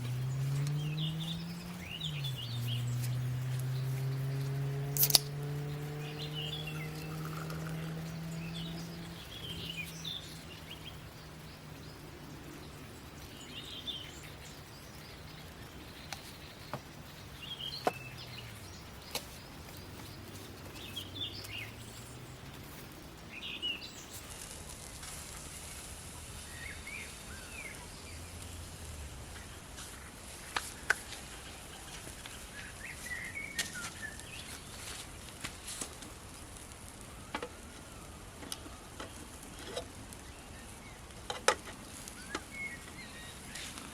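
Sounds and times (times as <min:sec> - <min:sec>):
low hum: 0:00.0 - 0:23.3
faint high hiss: 0:00.0 - 0:43.9
small birds chirping: 0:00.0 - 0:43.9
sharp clicks: 0:04.9 - 0:05.6.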